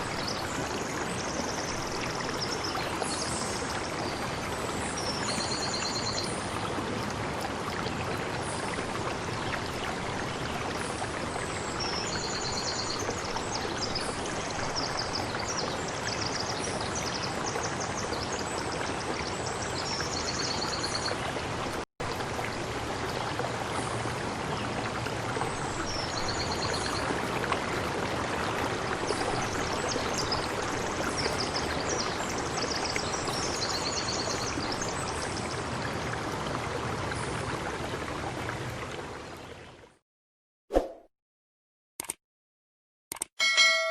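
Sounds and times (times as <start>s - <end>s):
stream rushing: 20.7s - 39.3s.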